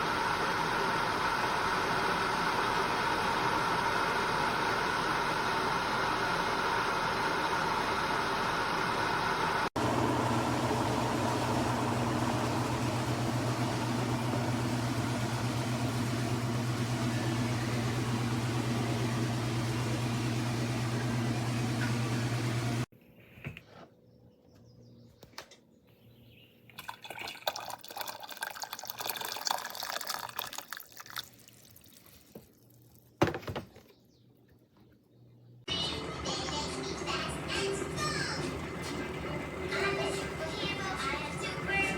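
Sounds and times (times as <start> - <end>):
kettle water rushing: 0.0 - 22.9, 26.8 - 32.0, 35.9 - 41.9.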